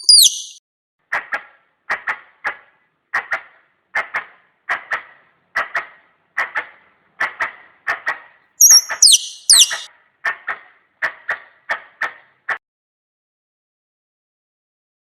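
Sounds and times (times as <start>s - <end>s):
sharp double chucks of squirrel call: 0.0s - 0.6s, 8.6s - 9.9s.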